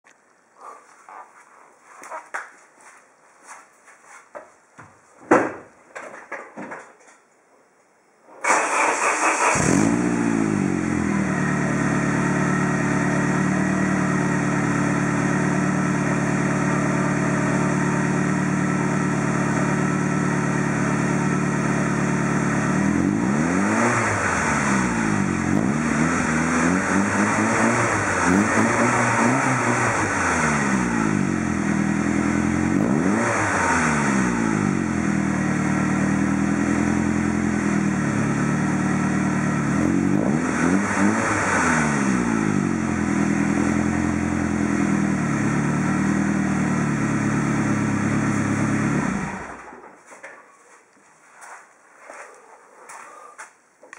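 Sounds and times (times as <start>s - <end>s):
engine revving: 8.4s - 49.7s
car engine starting and idling: 8.4s - 50.0s.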